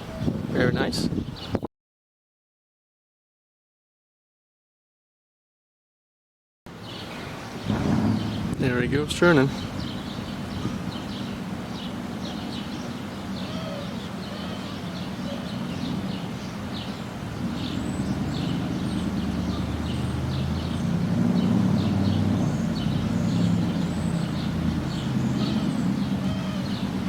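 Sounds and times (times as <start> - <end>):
small birds chirping: 0.0 - 1.7, 6.8 - 27.0
jet airliner rumbling overhead: 7.5 - 27.0.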